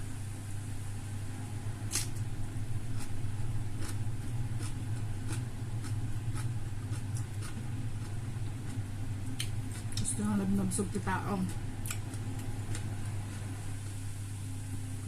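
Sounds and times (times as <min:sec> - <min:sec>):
steady low hum: 0:00.0 - 0:15.0
chewing clicks and smacks: 0:03.0 - 0:10.1, 0:11.5 - 0:13.4.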